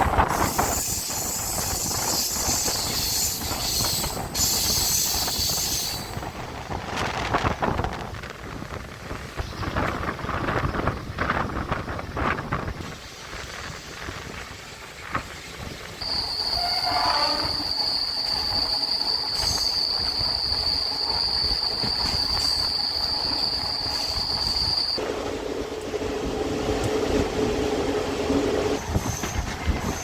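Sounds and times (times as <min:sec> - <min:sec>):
train humming: 0:00.0 - 0:30.0
train wheels squealing: 0:00.2 - 0:06.3, 0:16.0 - 0:25.0, 0:28.7 - 0:30.0.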